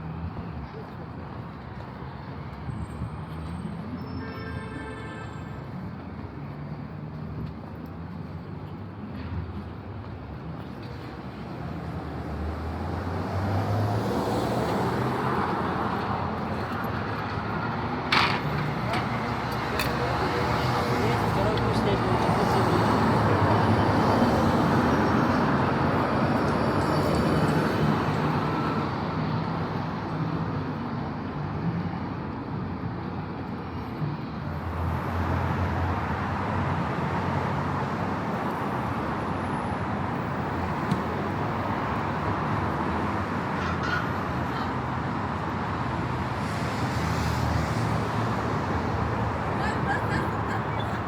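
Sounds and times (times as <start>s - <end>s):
cars going by: 5.6s - 51.0s.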